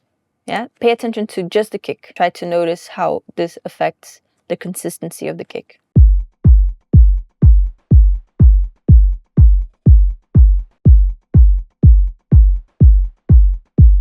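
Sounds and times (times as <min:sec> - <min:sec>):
electronic kick drum beat: 0:06.0 - 0:14.0.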